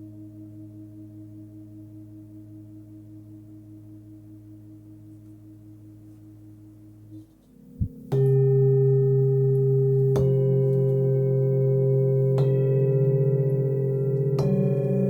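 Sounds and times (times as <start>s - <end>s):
low thump: 7.5s - 8.4s
singing bowl ringing: 7.6s - 15.0s.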